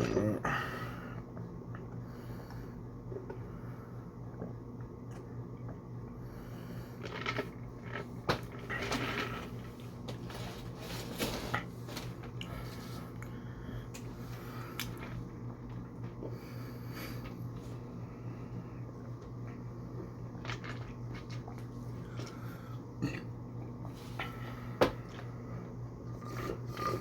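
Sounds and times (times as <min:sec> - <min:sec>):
steady low hum: 0:00.0 - 0:27.0
person chewing: 0:20.3 - 0:22.4.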